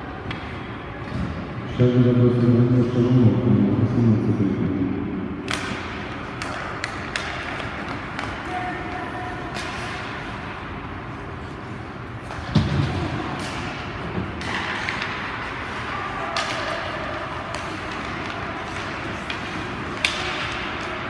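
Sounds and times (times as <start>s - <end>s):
arena hall noise: 0.0s - 21.0s
hockey sticks and puck clacking: 5.4s - 21.0s.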